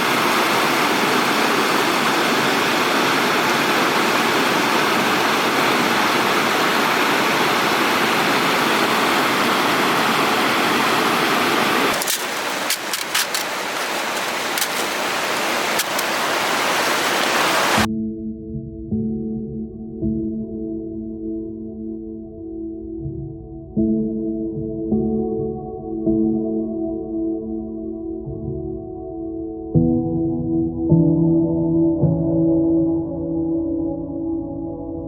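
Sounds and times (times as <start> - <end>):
stream water rushing: 0.0 - 17.9
sharp clicks: 11.9 - 15.0, 15.7 - 16.2.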